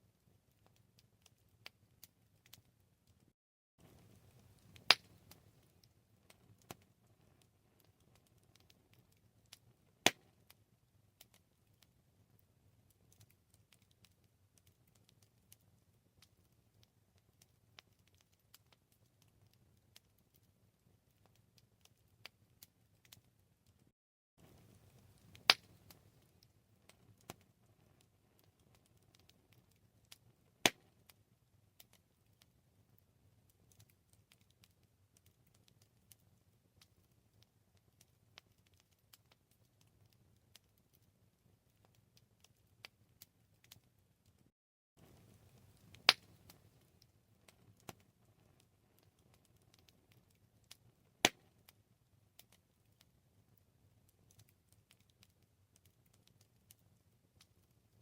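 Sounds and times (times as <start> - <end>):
wood fire crackling: 0.0 - 58.0
low rumble of flames: 3.8 - 10.0, 24.4 - 30.5, 45.0 - 50.3.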